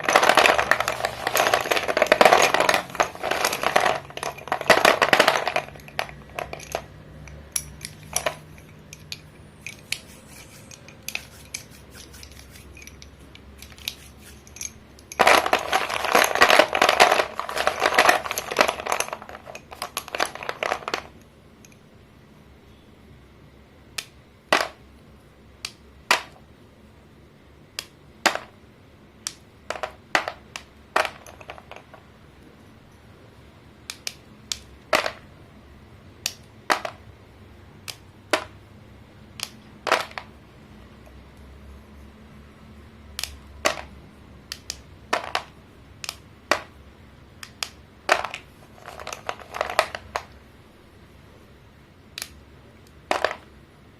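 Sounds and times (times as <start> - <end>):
chalk crunching and crackling: 0.0 - 3.4, 9.8 - 12.8, 13.6 - 14.6
sharp chalk snaps: 9.7 - 12.8, 24.0 - 24.2, 27.8 - 28.4, 47.4 - 48.5.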